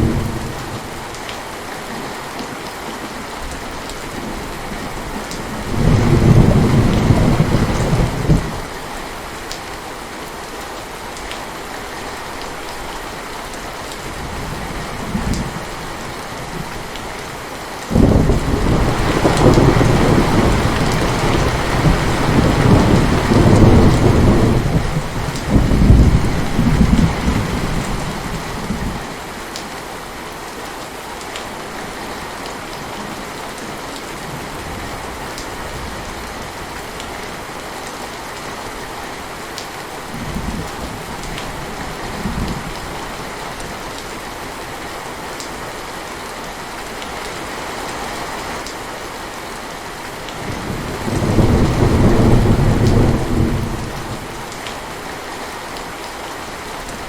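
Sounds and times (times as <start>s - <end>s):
thunder rumbling: 0.0s - 1.0s, 4.8s - 8.7s, 17.9s - 29.1s, 50.4s - 54.5s
heavy rain falling: 0.0s - 57.0s.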